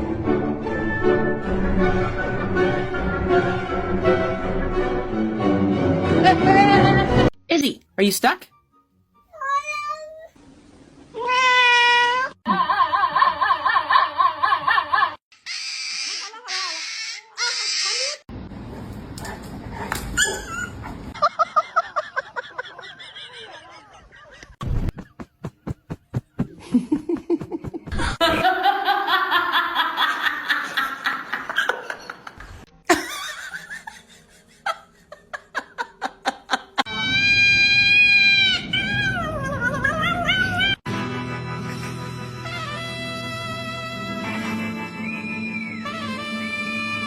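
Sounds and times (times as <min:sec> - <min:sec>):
people laughing: 0:12.5 - 0:15.2, 0:21.2 - 0:24.6, 0:26.5 - 0:36.9
pet animal crying: 0:15.4 - 0:18.2, 0:36.9 - 0:40.8.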